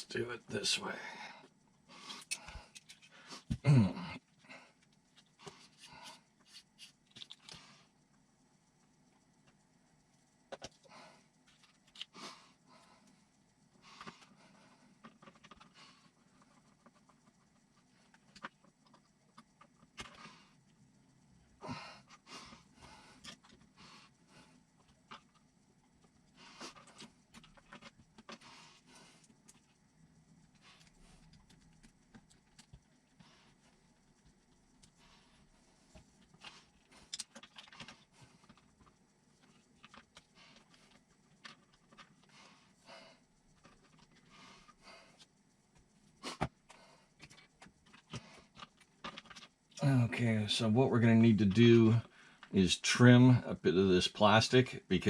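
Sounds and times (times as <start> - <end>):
small parts clicking and rustling: 2.1 - 3.6, 4.8 - 7.7, 14.0 - 20.7, 24.6 - 42.8, 43.4 - 49.8.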